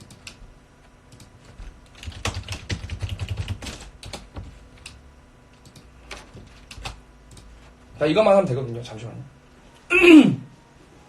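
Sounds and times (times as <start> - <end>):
computer keyboard typing: 0.0 - 0.4, 1.1 - 5.0, 5.6 - 7.5.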